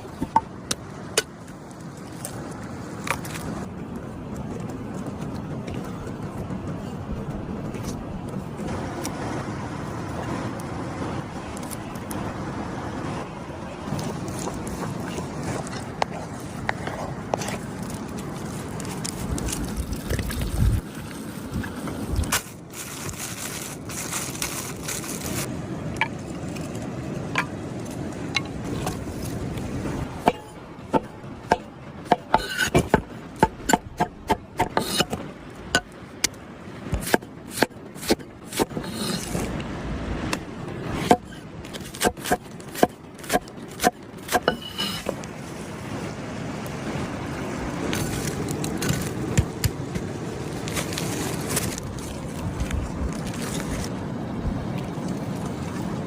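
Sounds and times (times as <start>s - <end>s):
steady outdoor hiss: 0.0s - 56.0s
scraping: 28.4s - 35.2s.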